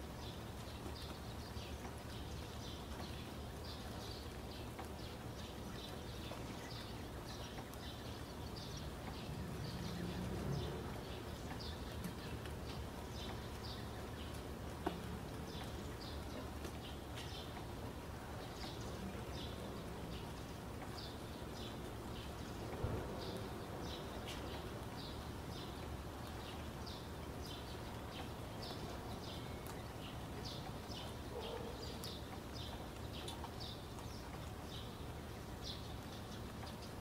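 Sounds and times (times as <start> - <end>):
background hiss: 0.0 - 37.0
small birds chirping: 0.0 - 37.0.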